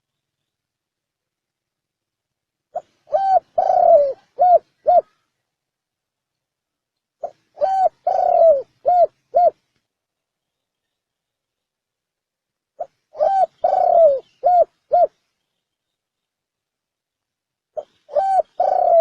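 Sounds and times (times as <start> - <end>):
dove cooing: 2.7 - 5.2, 7.2 - 9.6, 12.8 - 15.2, 17.8 - 19.0.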